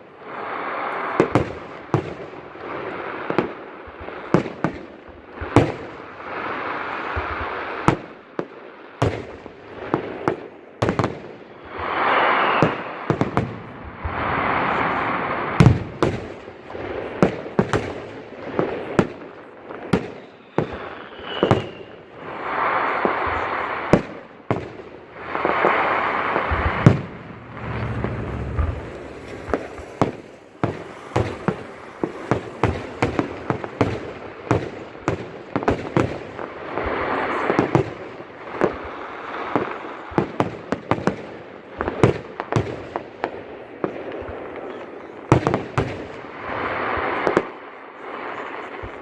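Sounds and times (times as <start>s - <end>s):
fireworks cracks and pops: 9.9s - 49.0s
crackling hiss: 18.4s - 40.0s
low rumble: 26.1s - 32.0s.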